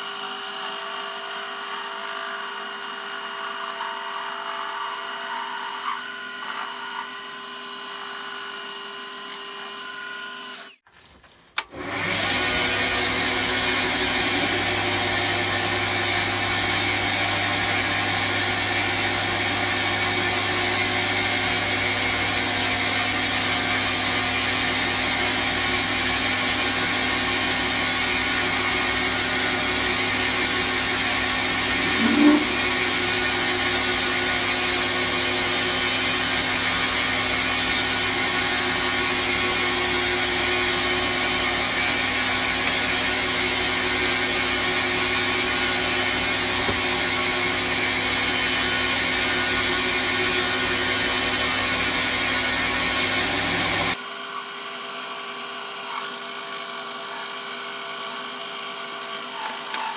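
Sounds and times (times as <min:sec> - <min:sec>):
metal lathe humming: 0:11.8 - 0:54.0
rising machine squeal: 0:31.7 - 0:32.8.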